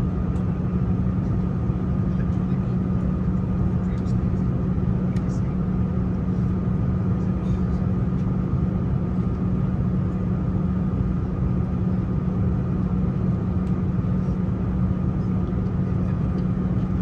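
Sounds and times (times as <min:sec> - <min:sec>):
aircraft cabin air-conditioning drone: 0:00.0 - 0:17.0.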